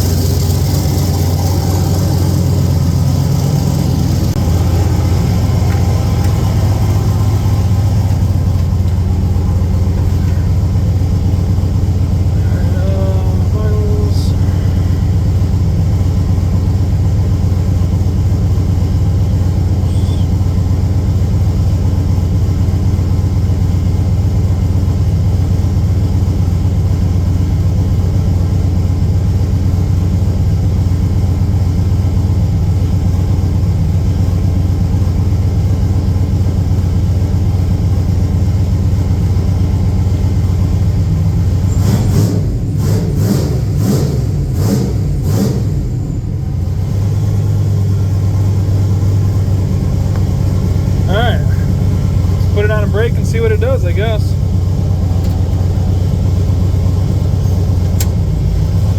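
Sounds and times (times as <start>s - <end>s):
truck engine idling: 0.0s - 58.9s.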